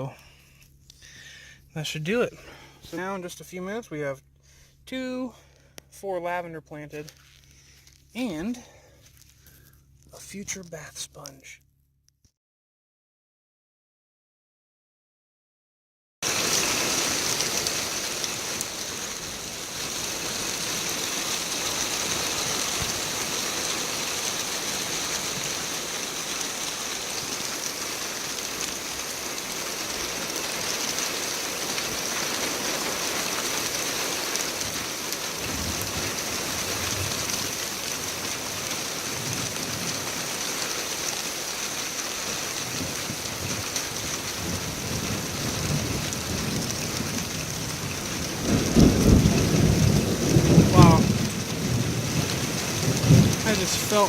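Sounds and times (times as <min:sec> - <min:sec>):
steady rain falling: 0:16.2 - 0:54.0
low thunder rumble: 0:35.4 - 0:37.6, 0:42.7 - 0:53.9.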